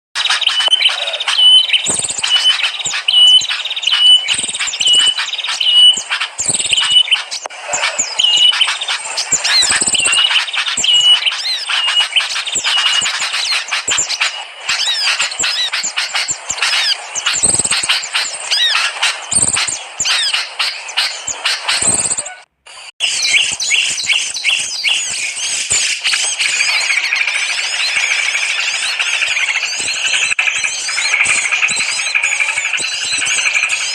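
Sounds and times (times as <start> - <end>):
birds chirping and trilling: 0.2 - 33.9
dense bird twittering: 0.2 - 33.9.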